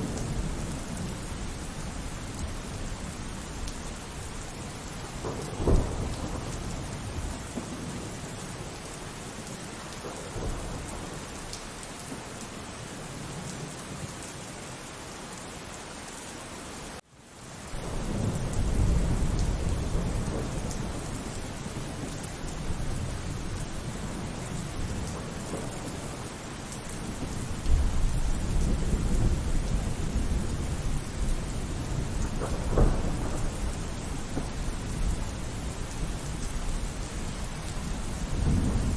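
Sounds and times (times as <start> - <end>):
low rolling thunder rumble: 0.0 - 11.3, 17.8 - 38.9
steady rainfall: 0.0 - 38.9
sharp thunderclap: 5.2 - 8.1, 27.2 - 35.2, 38.2 - 38.9.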